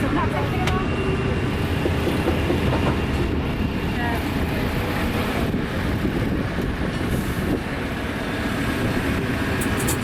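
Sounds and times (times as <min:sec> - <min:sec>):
carriages rolling: 0:09.6 - 0:10.0.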